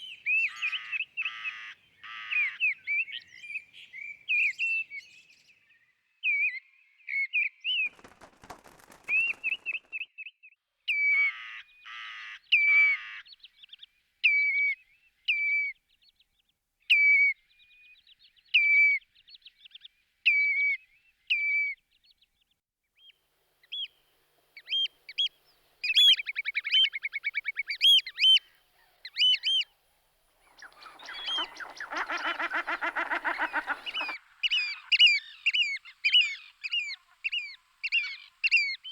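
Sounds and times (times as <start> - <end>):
whimbrel whistled calls: 24.6 - 29.7, 30.5 - 38.9.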